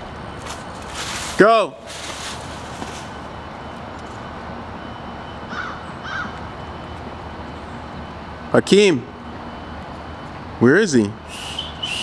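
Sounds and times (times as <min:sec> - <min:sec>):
steady background noise: 0:00.0 - 0:12.0
short bird calls: 0:11.3 - 0:12.0.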